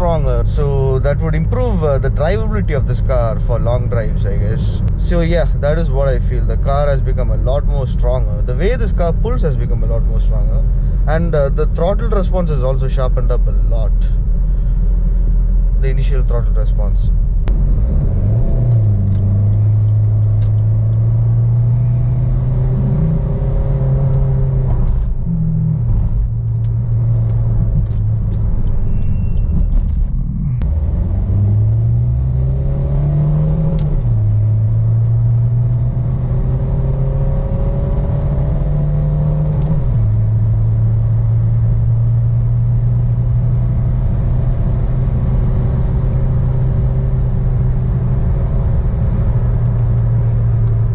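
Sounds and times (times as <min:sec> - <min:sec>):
car engine accelerating through gears: 0:17.4 - 0:50.9.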